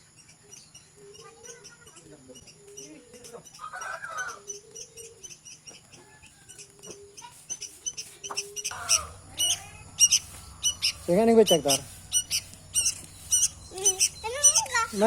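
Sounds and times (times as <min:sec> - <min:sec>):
bird chicks peeping: 0:00.0 - 0:15.0
low chirps: 0:06.5 - 0:15.0.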